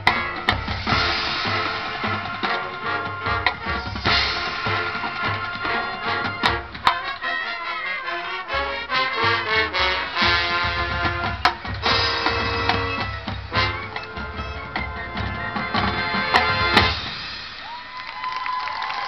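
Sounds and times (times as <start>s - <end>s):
sharp percussion hits: 0.0s - 7.2s
marching band playing: 0.0s - 18.0s.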